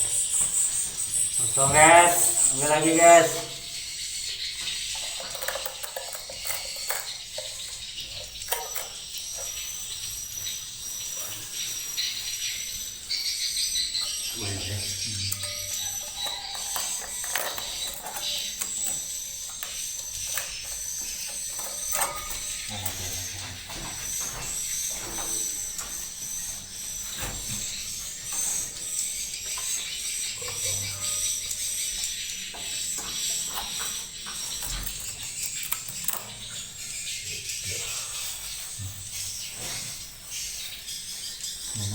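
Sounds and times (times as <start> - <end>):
steady high hiss: 0.0 - 4.5, 8.5 - 16.0
swiftlets clicking and chirping: 0.0 - 41.8.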